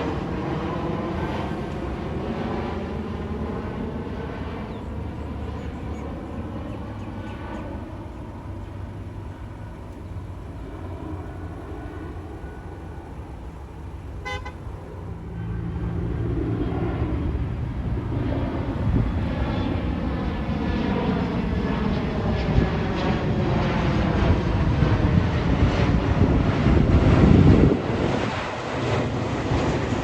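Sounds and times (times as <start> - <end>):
jet airliner passing overhead: 0.0 - 30.0
short car horn toot: 14.2 - 14.6.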